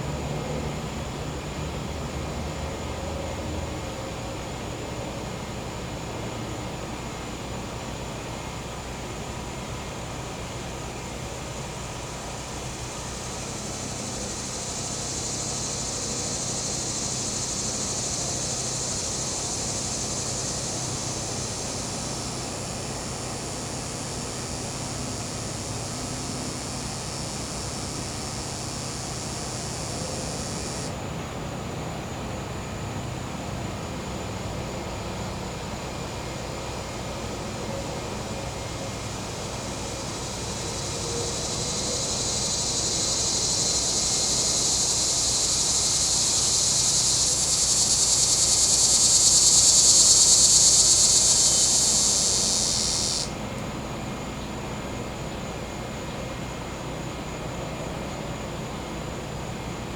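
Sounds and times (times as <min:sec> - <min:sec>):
cicada buzz: 0:00.0 - 0:59.9
high insect chorus: 0:00.0 - 0:59.9
generator humming: 0:11.6 - 0:31.0, 0:39.1 - 0:53.6.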